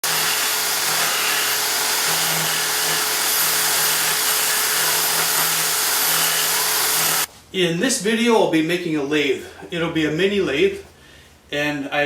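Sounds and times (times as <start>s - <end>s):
power tool motor whirring: 0.0s - 7.3s.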